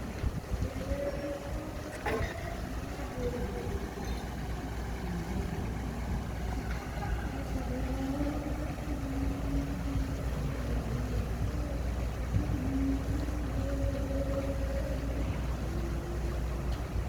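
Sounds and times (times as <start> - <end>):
bulldozer diesel engine rumbling: 0.0 - 17.0.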